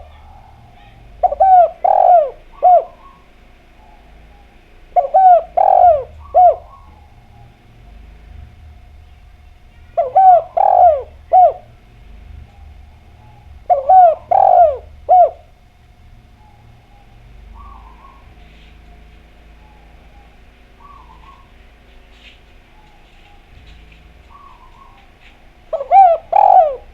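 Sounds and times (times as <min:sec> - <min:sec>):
faint bird calls: 0:00.0 - 0:08.2, 0:08.9 - 0:26.9
dove cooing: 0:00.0 - 0:26.9.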